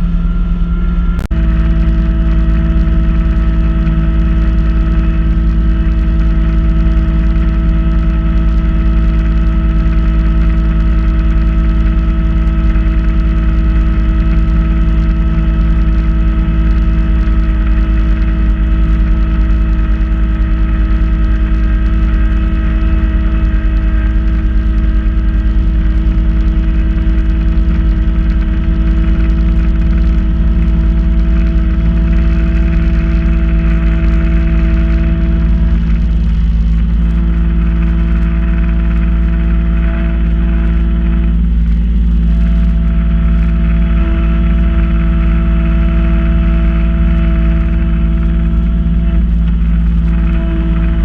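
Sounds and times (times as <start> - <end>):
snow blower whine: 0.0 - 51.0
tractor diesel engine running: 0.0 - 51.0.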